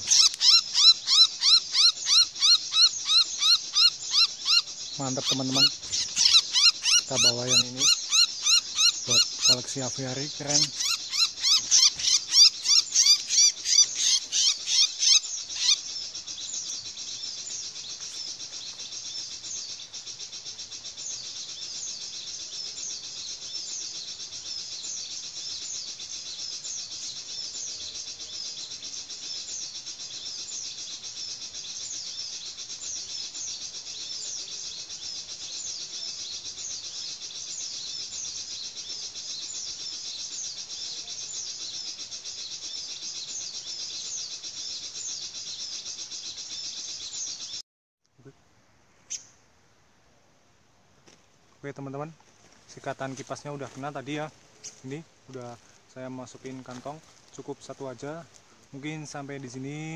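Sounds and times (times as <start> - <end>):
high-pitched bird chirping: 0.0 - 16.0.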